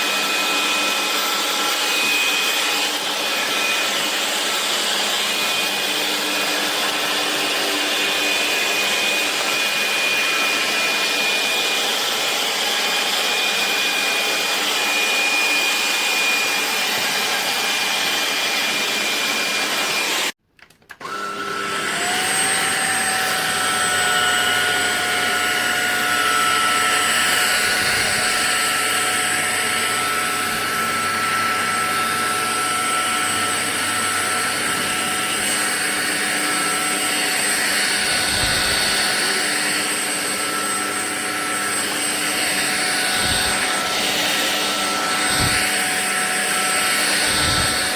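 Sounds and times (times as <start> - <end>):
stick vacuum whining: 0.0 - 47.9.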